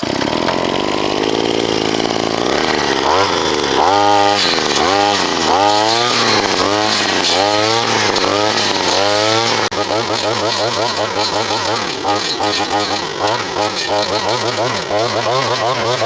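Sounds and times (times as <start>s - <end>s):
small engine revving: 0.0s - 16.0s.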